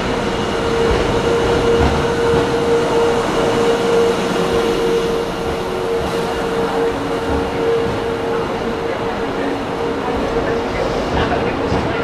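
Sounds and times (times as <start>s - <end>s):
electric train rolling past: 0.0s - 12.0s.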